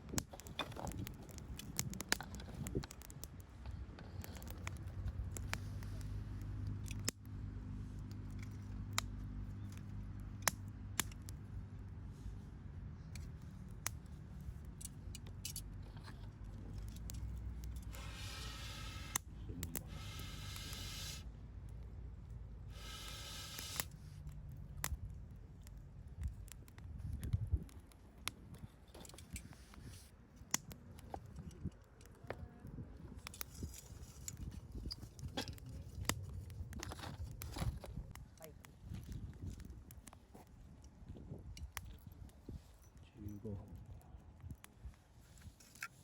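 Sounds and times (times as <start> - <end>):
campfire crackling and popping: 0.0 - 46.0
hiss: 17.9 - 21.3, 22.7 - 24.0.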